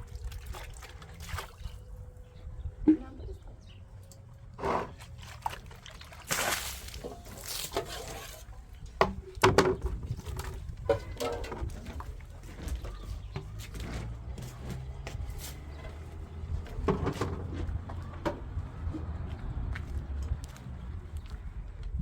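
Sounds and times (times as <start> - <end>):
liquid pouring and sloshing: 0.0 - 2.1, 4.2 - 13.8
knocks and clatter: 9.0 - 19.2.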